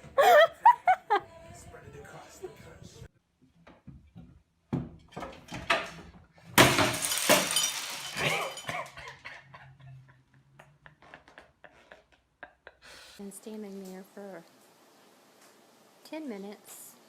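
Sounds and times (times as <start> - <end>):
crash of something breaking: 6.6 - 8.8
small pieces clinking: 6.6 - 9.0.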